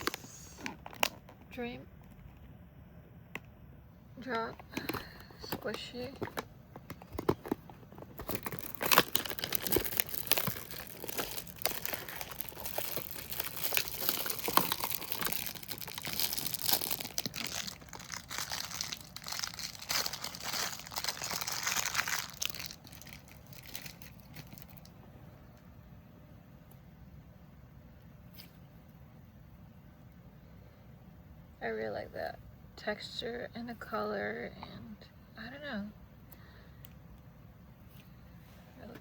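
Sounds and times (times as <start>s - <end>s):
plastic packaging crinkling: 0.0s - 1.4s, 4.2s - 24.9s.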